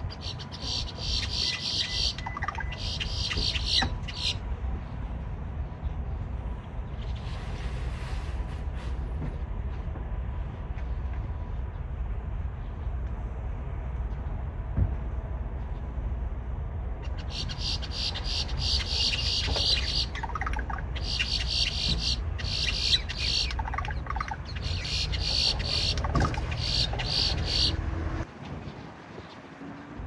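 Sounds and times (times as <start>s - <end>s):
grackles calling: 0.0s - 4.4s, 17.0s - 28.2s.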